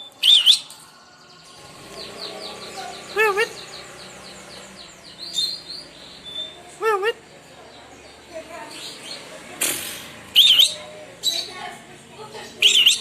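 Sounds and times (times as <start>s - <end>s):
lovebird chirping: 0.0s - 0.8s, 1.4s - 7.2s, 10.3s - 11.6s, 12.4s - 13.0s.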